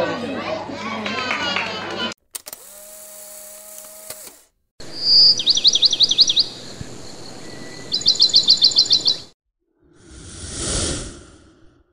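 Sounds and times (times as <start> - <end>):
bird chirps: 4.8 - 9.4
short rush of noise: 10.0 - 11.9.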